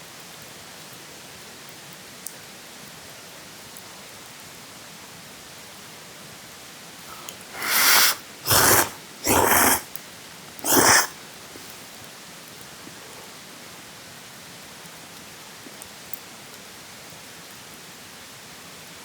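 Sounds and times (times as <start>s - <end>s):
rain hiss: 7.0s - 9.9s
loud rasping noises: 7.1s - 9.9s, 10.6s - 11.2s.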